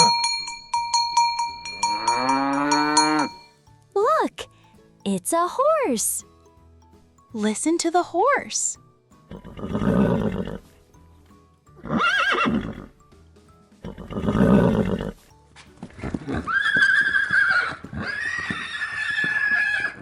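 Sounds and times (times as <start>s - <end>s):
horse neighing: 9.3s - 10.6s, 11.8s - 12.9s, 13.8s - 15.2s, 16.2s - 20.0s.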